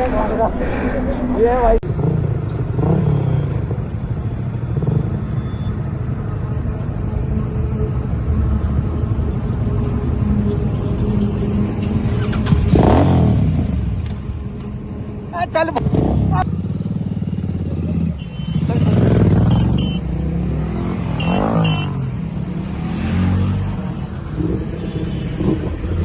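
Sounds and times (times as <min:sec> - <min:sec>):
motorcycle engine running: 0:15.8 - 0:21.0.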